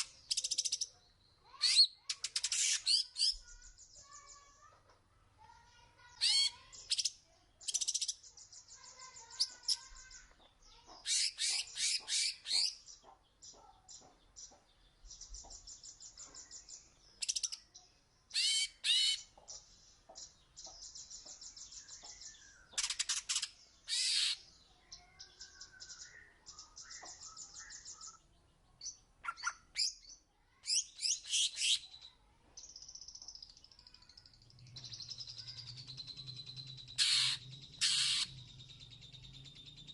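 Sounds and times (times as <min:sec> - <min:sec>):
songbird singing whistles and trills: 0:24.9 - 0:39.9.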